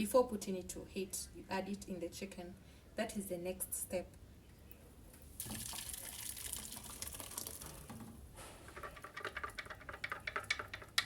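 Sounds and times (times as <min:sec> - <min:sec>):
liquid pouring: 0:05.4 - 0:11.0.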